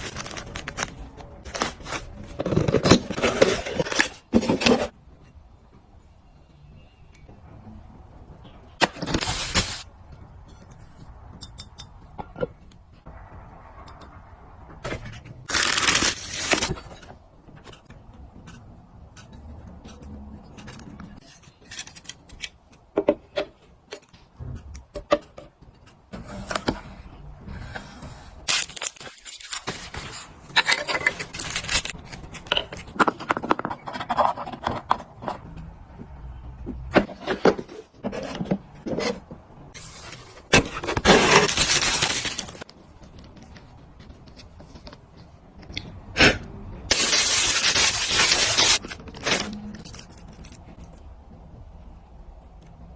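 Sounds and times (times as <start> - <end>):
rustling or scraping: 46.9 - 51.0.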